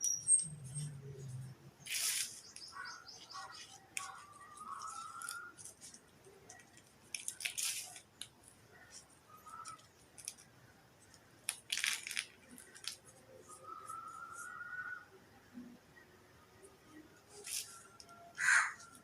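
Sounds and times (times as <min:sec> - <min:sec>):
rustling or scraping: 0:00.3 - 0:06.1, 0:17.3 - 0:19.0.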